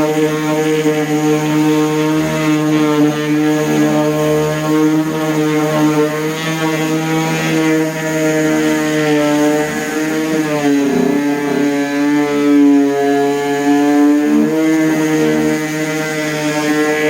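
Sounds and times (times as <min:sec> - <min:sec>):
orbital sander sanding wood: 0:08.4 - 0:11.8.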